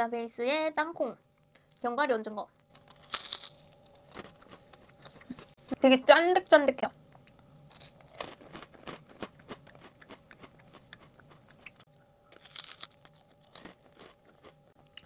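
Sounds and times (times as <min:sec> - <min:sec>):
crunchy chewing: 0:02.6 - 0:05.6, 0:07.1 - 0:15.0.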